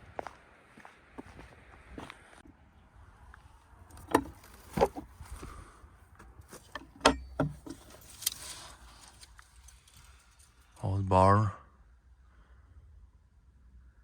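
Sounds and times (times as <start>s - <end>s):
footsteps on rough ground: 0.0s - 2.5s, 3.2s - 10.3s.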